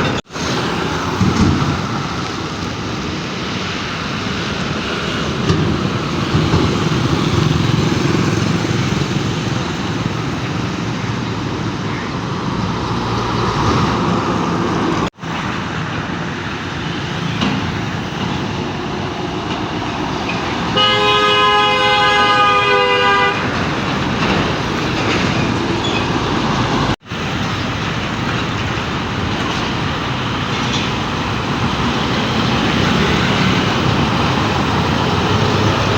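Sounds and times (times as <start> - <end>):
heavy road traffic: 0.0 - 35.9
vehicle horn: 20.7 - 23.8.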